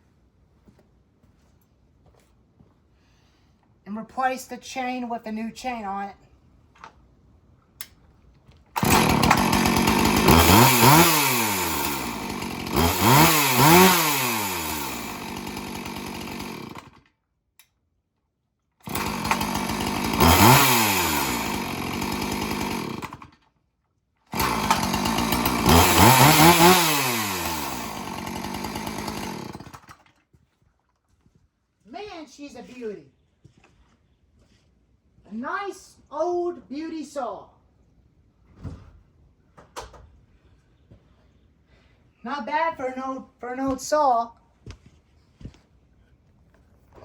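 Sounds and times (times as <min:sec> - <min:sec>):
chainsaw revving: 0:08.8 - 0:17.0, 0:18.8 - 0:23.4, 0:24.3 - 0:30.0.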